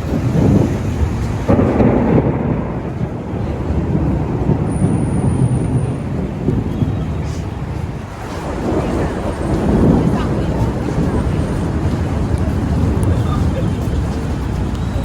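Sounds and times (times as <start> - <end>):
thunder rumbling: 0.0 - 15.0.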